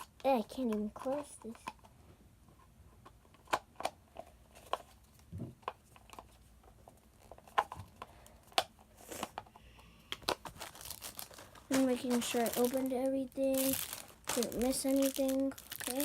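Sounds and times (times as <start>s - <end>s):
plastic packaging clicks and taps: 10.1s - 10.7s
packaging rustle: 10.2s - 16.0s.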